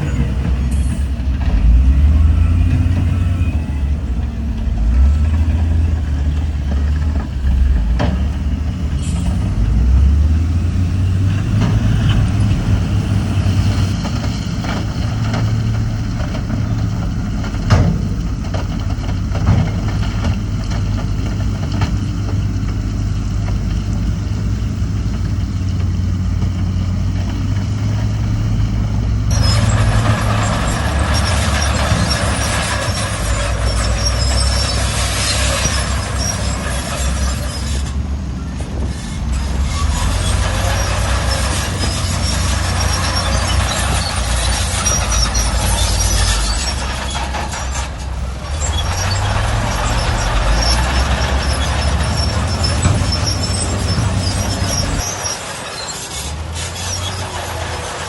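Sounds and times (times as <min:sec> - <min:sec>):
heavy diesel engines running: 0:00.0 - 0:58.0.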